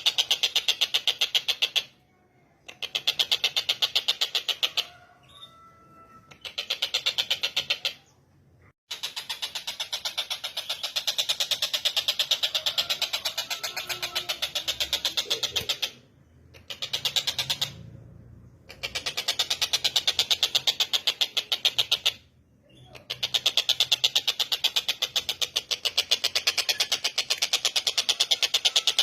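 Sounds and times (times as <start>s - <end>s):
kingfisher harsh chattering: 8.9s - 17.8s, 18.7s - 22.2s.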